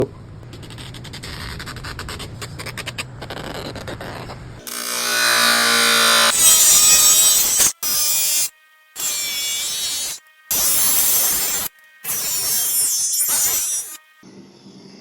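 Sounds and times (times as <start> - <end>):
power tool motor whine: 4.6 - 14.2.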